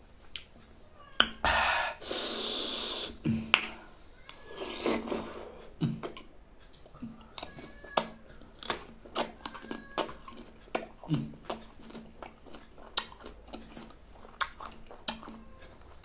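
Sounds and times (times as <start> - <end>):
person chewing wet mouth clicks: 6.9 - 16.0.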